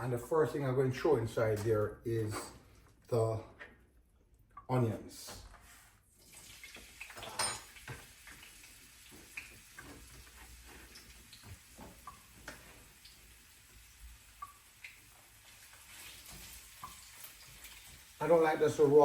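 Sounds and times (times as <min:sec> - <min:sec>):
onions sizzling in a frying pan: 0:07.7 - 0:19.0.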